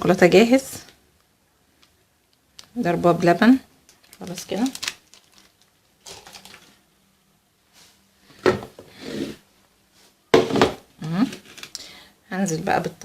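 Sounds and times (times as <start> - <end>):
utensils clattering: 6.0 - 6.7.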